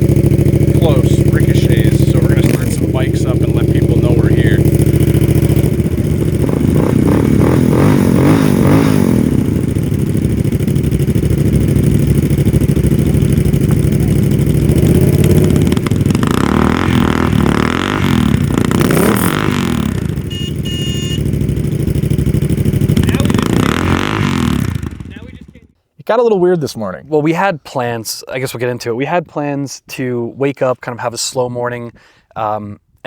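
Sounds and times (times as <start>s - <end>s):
motorcycle engines revving: 0.0s - 25.7s.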